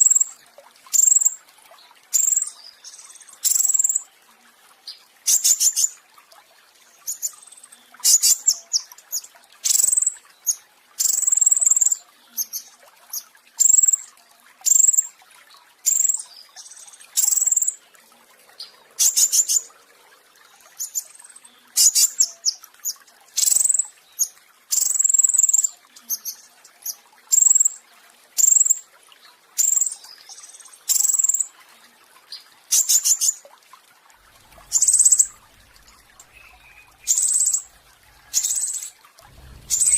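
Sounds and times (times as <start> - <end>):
songbird singing trills: 34.5 - 39.9.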